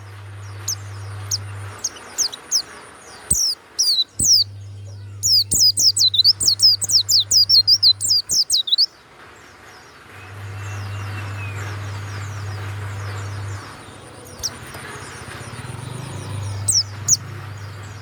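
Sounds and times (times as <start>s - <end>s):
bird singing high notes: 0.6s - 8.9s.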